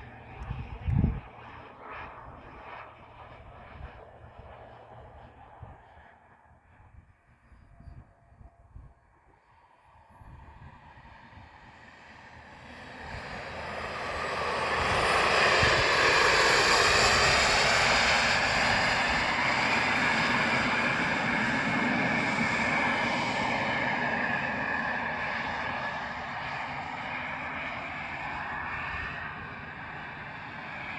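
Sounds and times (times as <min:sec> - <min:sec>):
model jet turbine flying past: 0:00.0 - 0:30.9.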